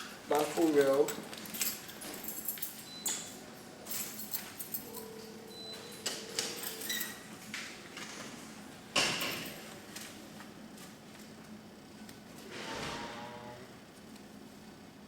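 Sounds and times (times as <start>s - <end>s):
keys clicking and clinking: 0.6s - 7.2s.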